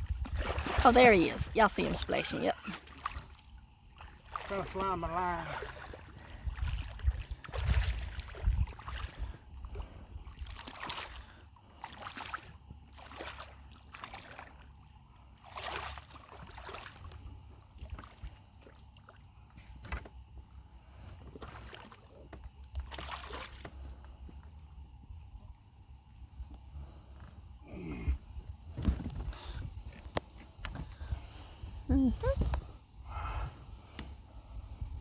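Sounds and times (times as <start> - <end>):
water splashing beside boat: 0.0 - 25.7
faint steady low hum: 0.0 - 35.0.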